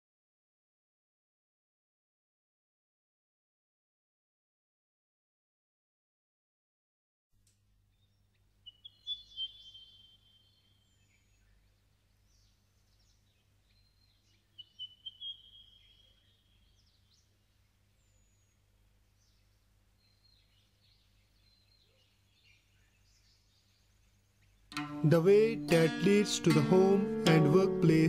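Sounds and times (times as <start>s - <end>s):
faint bird chirps: 7.9s - 24.7s.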